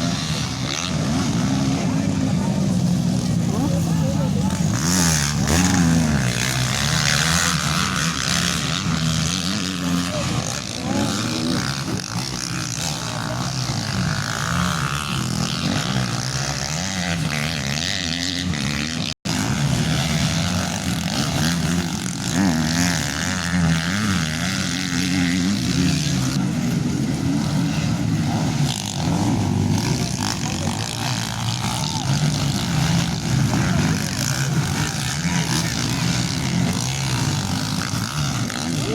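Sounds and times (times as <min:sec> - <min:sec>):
motocross engines revving: 0:00.0 - 0:38.9.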